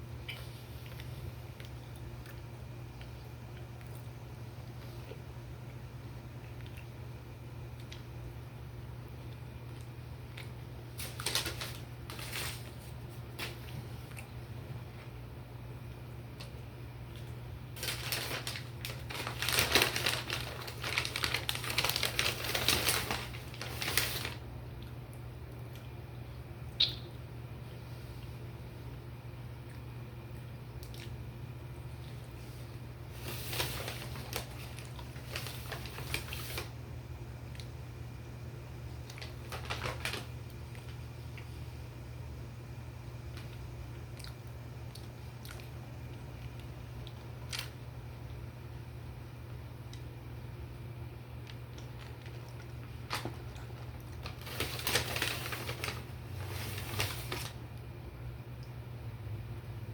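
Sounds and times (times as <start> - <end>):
steady low hum: 0.0 - 59.9
paper packaging rustling: 10.9 - 13.7, 17.8 - 24.4, 32.5 - 36.7, 39.1 - 40.9, 51.7 - 57.6
crispy fried chicken crunching: 17.1 - 24.4.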